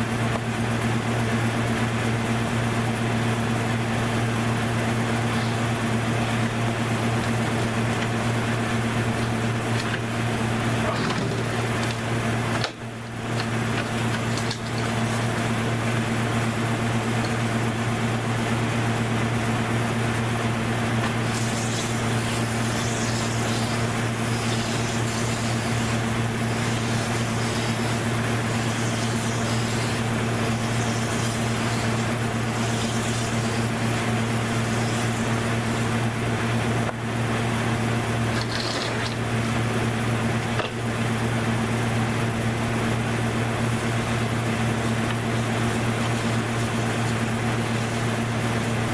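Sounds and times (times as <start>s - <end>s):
motor humming: 1.5s - 48.9s
hiss: 21.2s - 33.6s.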